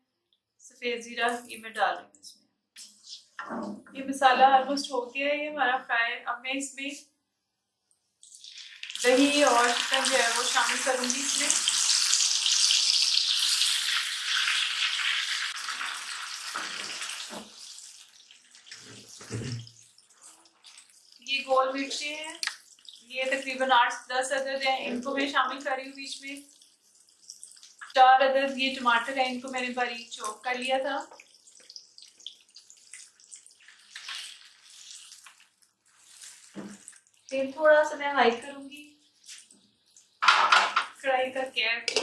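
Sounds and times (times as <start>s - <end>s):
chicken sizzling in hot oil: 8.2s - 24.0s, 24.8s - 37.6s.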